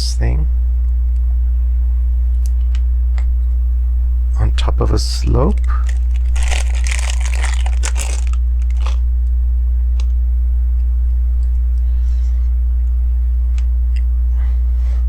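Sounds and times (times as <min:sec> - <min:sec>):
low electrical hum: 0:00.0 - 0:15.0
plastic pieces rustling: 0:05.6 - 0:09.0.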